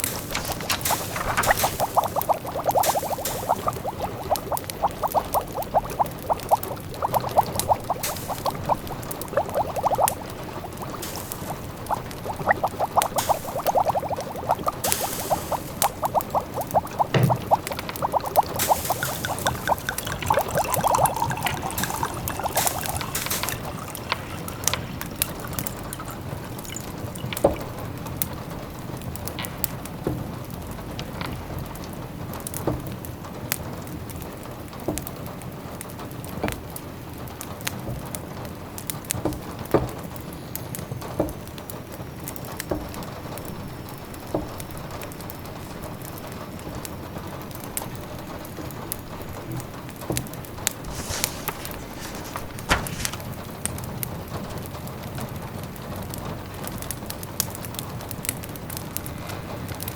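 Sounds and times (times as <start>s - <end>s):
fireplace crackling and popping: 0.0s - 27.8s, 50.4s - 53.8s
liquid simmering: 0.0s - 28.0s, 50.6s - 53.4s
rain: 0.0s - 59.9s.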